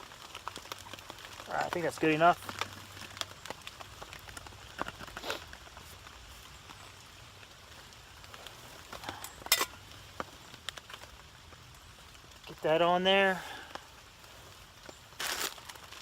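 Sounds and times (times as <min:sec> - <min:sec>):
campfire crackling and popping: 0:00.0 - 0:16.0
faint steady hiss: 0:00.0 - 0:16.0.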